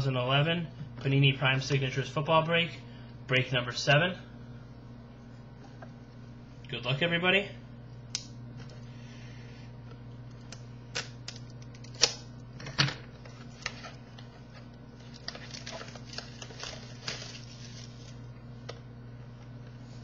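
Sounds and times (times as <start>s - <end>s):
steady low hum: 0.0s - 20.0s
packaging crinkling: 13.2s - 18.3s.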